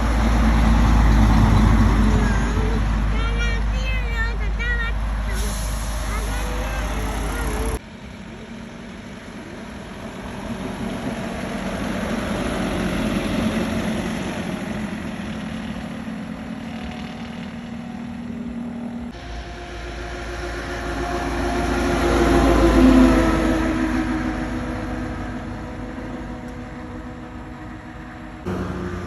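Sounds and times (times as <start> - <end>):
heavy truck engine running: 0.0 - 29.0.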